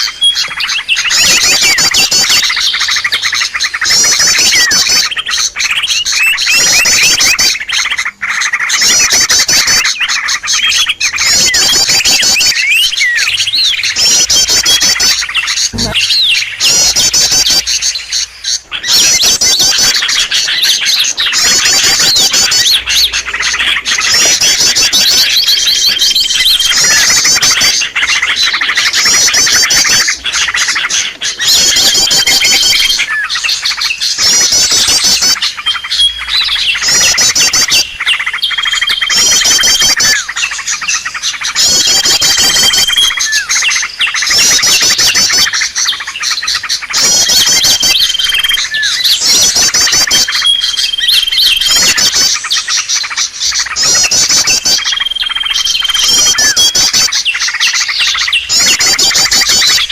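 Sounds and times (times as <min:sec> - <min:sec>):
songbirds trilling: 0:00.0 - 0:59.9.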